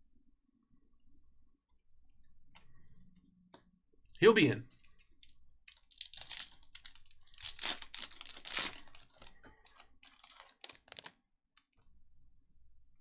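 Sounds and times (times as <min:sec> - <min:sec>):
wrappers crinkling and tearing: 0:05.7 - 0:11.2
cards rustling: 0:05.9 - 0:11.1.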